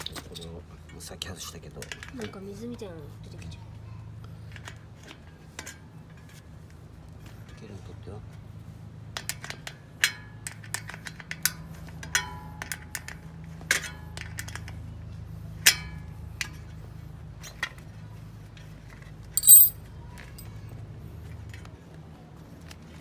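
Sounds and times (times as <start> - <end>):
ringing metallic clink: 19.4 - 19.8
tools clicking and tapping: 19.4 - 19.8.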